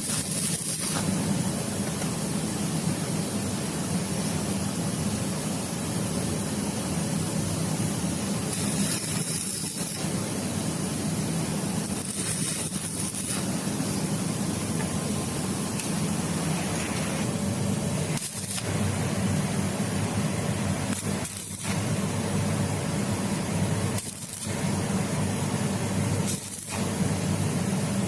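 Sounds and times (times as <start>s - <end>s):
hissing bursts: 0.0s - 1.6s, 8.2s - 25.1s, 26.3s - 27.3s
machine running: 5.8s - 28.0s.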